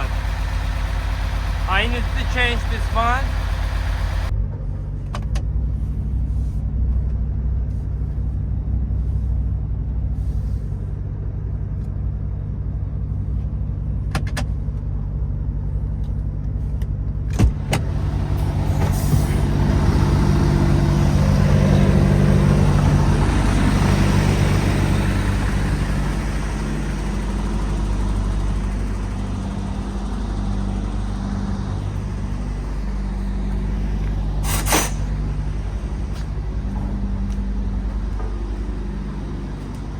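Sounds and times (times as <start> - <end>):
truck diesel engine running: 0.0 - 5.1, 14.6 - 39.9.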